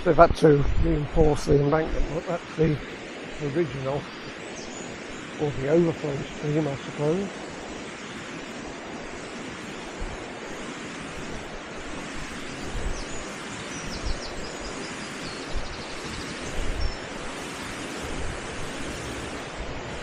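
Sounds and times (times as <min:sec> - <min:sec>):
wind buffeting microphone: 0:00.0 - 0:20.0
stream water rushing: 0:01.0 - 0:20.0.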